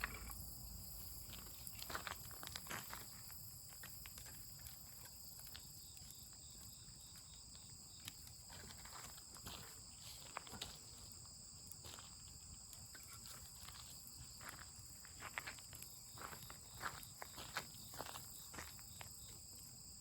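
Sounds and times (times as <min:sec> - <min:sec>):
crickets chirring: 0:00.0 - 0:20.0
small clicks and crackles: 0:01.3 - 0:06.2.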